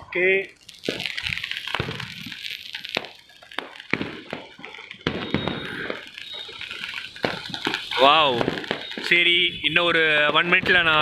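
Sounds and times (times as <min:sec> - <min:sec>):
firecrackers and fireworks bangs: 0:00.0 - 0:11.0
steady crackling: 0:00.0 - 0:11.0.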